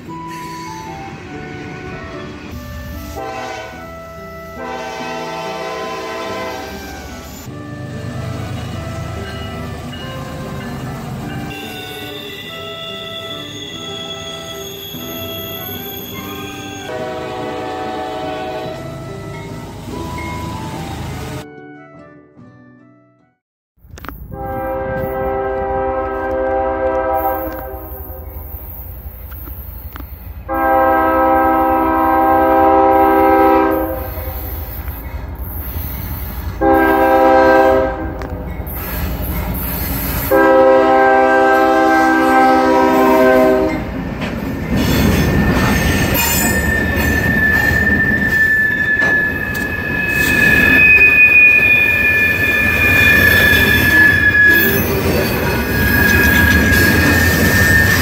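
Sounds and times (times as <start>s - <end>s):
steel wheels squealing: 0.0s - 1.4s, 6.5s - 7.6s, 8.4s - 17.0s, 27.2s - 30.4s, 33.8s - 37.1s, 38.5s - 40.4s, 44.2s - 58.0s
locomotive horn: 0.3s - 20.0s, 24.3s - 28.4s, 30.5s - 34.6s, 36.6s - 38.3s, 40.2s - 44.0s, 45.0s - 58.0s.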